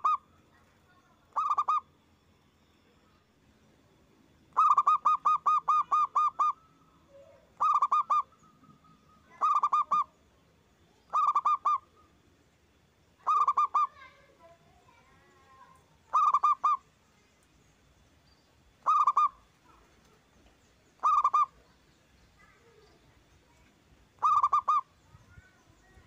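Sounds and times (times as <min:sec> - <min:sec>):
dove staccato cooing: 0:00.0 - 0:00.2, 0:01.4 - 0:01.8, 0:04.6 - 0:06.6, 0:07.2 - 0:10.1, 0:11.1 - 0:11.9, 0:13.2 - 0:14.1, 0:16.1 - 0:16.8, 0:18.8 - 0:19.8, 0:21.0 - 0:21.6, 0:24.2 - 0:24.9
faint bird chirps: 0:00.0 - 0:26.0.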